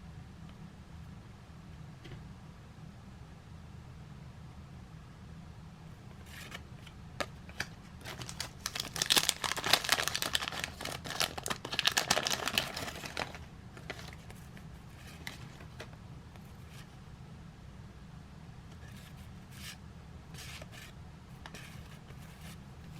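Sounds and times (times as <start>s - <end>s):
wax paper wrapper crinkling: 7.5s - 15.9s.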